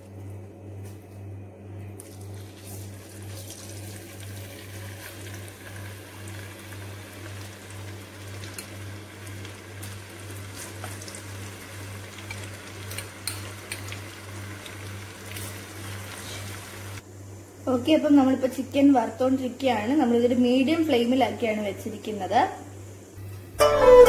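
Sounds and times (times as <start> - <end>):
steady low hum: 0.0 - 24.0
chicken sizzling in oil: 2.2 - 17.0.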